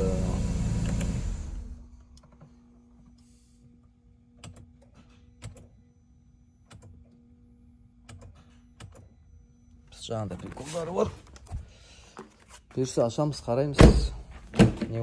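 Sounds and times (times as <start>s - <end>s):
car engine shutting off: 0.0s - 2.3s.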